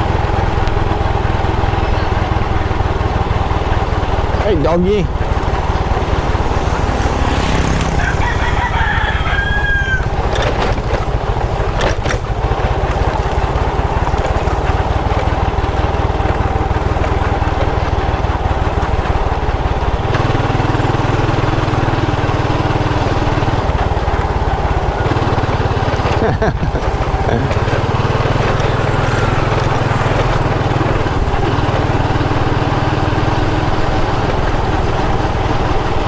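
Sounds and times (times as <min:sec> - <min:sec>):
motorbike engine running: 0:00.0 - 0:36.0
rooster crowing: 0:06.7 - 0:10.6.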